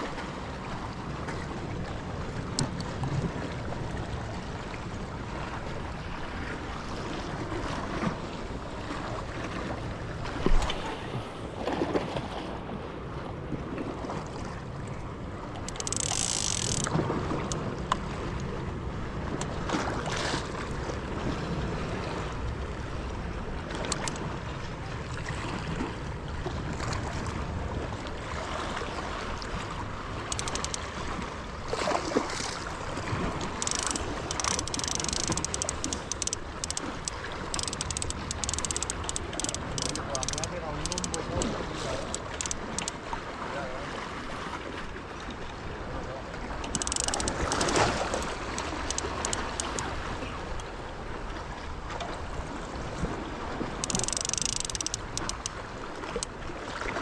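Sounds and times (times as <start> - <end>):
surf washing against rocks: 0.0 - 57.0
small clicks and knocks: 15.6 - 18.5, 23.8 - 24.2, 30.3 - 30.9, 33.4 - 43.0, 46.6 - 49.9, 53.8 - 56.3.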